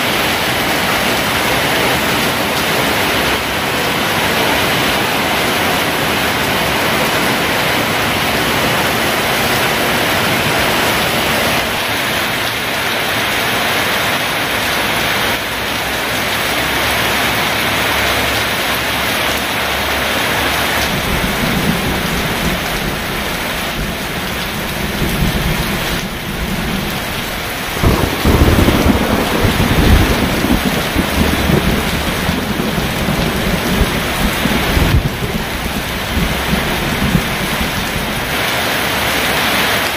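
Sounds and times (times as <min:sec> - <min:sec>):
heavy rain pouring: 0:00.0 - 0:39.9
thunder rumbling: 0:20.3 - 0:39.3.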